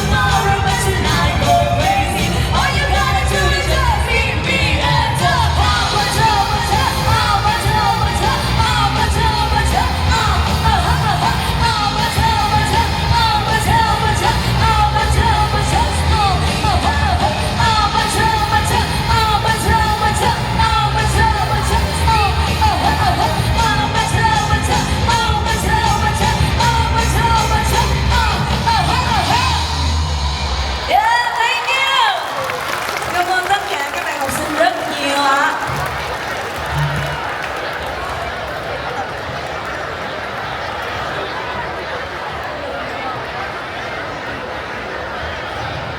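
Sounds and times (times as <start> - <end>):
person singing: 0.0 - 29.9
heavy bass: 0.0 - 31.0
live pop-rock band: 0.0 - 31.0
people yelling: 25.7 - 45.9.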